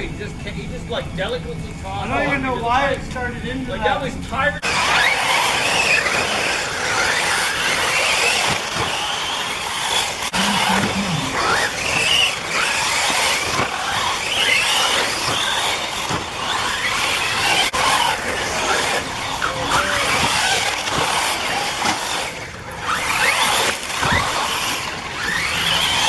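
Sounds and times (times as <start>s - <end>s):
rc buggy motors whining: 0.0s - 26.0s.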